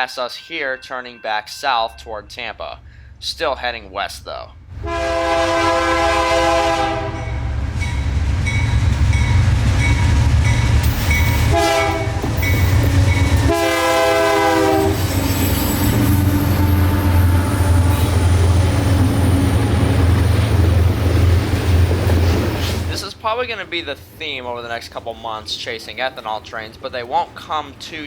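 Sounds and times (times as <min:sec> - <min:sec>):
freight train rumbling past: 0:01.6 - 0:28.0
train air horn blasts: 0:04.8 - 0:07.5, 0:11.2 - 0:20.3.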